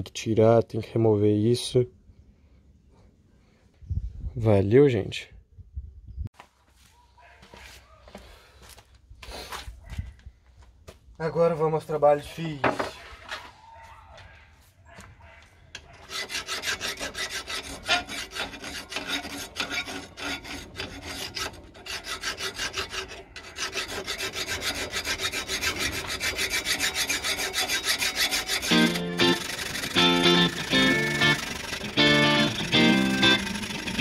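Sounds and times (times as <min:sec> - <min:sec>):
file rasping on steel blade: 0:15.8 - 0:34.0
guitar music: 0:28.7 - 0:34.0.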